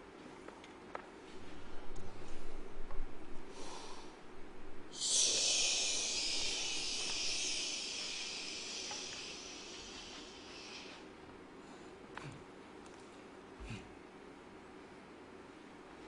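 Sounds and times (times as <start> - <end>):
high hissing: 4.9 - 11.2.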